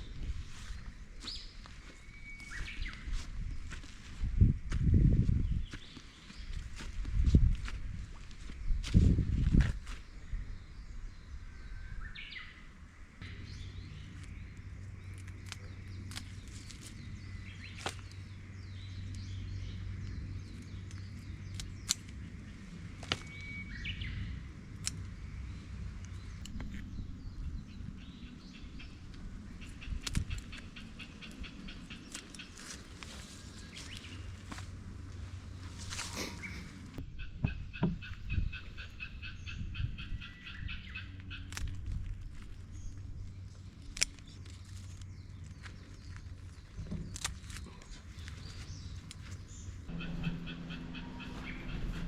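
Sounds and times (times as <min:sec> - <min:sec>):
low steady hum: 0:00.0 - 0:52.0
small bird calling: 0:26.1 - 0:34.6, 0:35.7 - 0:41.7, 0:44.0 - 0:52.0.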